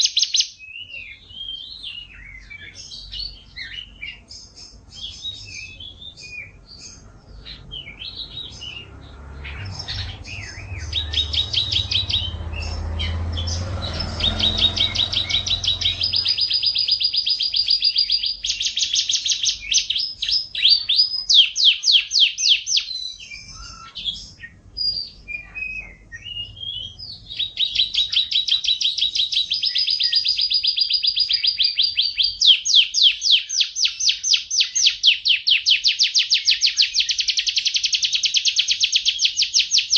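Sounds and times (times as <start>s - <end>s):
songbird singing and trilling: 0.0s - 39.9s
low rumble: 7.0s - 17.0s.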